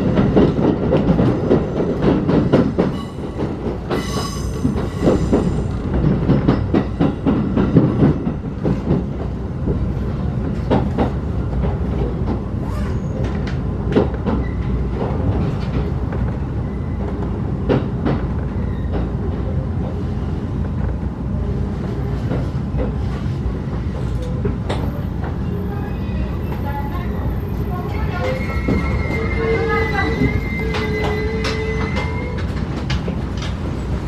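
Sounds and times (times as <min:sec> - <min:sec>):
train coach rumble: 0:00.0 - 0:34.0
high-pitched wheel squeal: 0:28.2 - 0:32.4.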